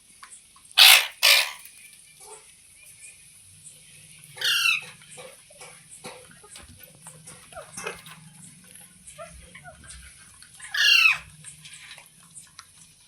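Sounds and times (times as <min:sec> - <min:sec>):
parrot squawk: 0:00.8 - 0:01.7, 0:04.4 - 0:05.4, 0:10.6 - 0:11.3.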